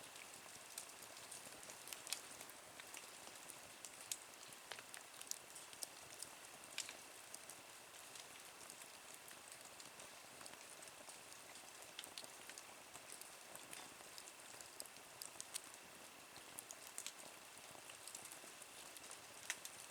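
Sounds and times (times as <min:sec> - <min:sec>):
wood fire crackling and popping: 0:00.7 - 0:19.9.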